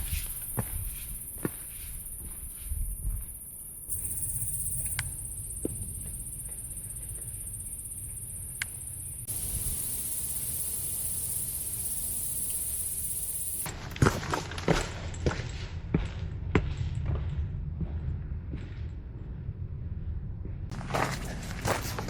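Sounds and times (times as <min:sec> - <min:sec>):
footsteps on a trail: 0:00.0 - 0:03.5, 0:20.7 - 0:22.0
insects chirring: 0:00.0 - 0:13.8.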